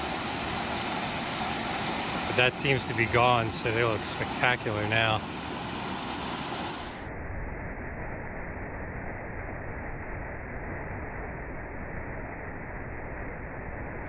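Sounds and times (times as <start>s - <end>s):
waterfall rushing over rocks: 0.0s - 7.1s.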